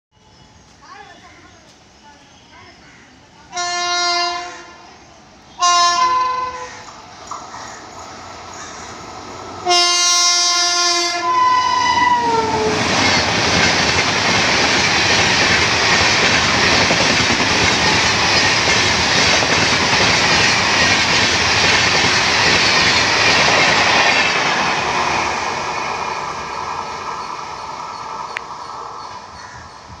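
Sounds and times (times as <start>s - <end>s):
train coaches running by: 0.2s - 30.0s
train horn blast: 3.5s - 6.8s, 9.6s - 12.9s.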